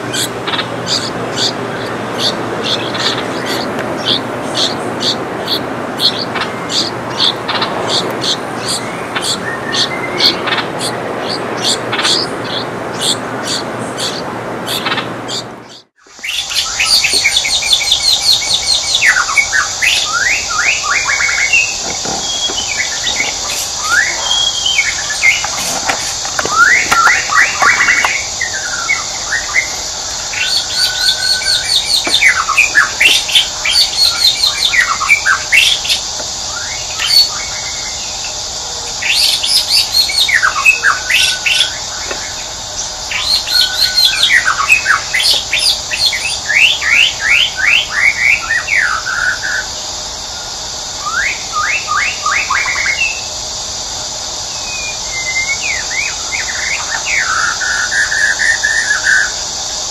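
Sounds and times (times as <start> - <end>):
small birds chirping: 0.0 - 59.9
steady high hiss: 16.0 - 59.9.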